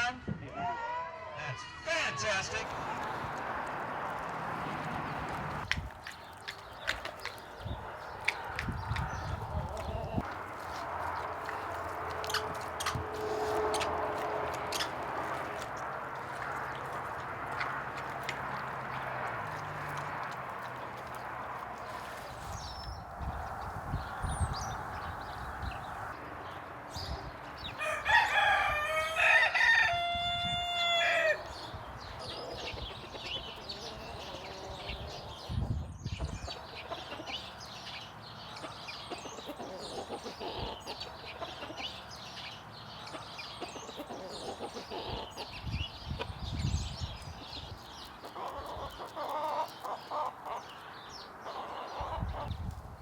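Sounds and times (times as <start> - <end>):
chickens clucking: 2.6 - 26.2, 32.1 - 37.6, 38.5 - 42.2, 43.0 - 46.4, 47.6 - 52.8
rooster crowing: 27.8 - 31.5.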